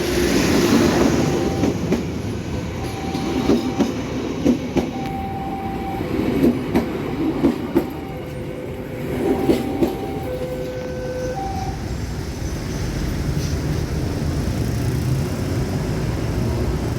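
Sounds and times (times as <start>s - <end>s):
high ringing rail tones: 0.0s - 13.6s
train rumbling: 0.0s - 16.9s
train wheels clicking on rail joints: 0.3s - 5.2s, 6.2s - 8.5s.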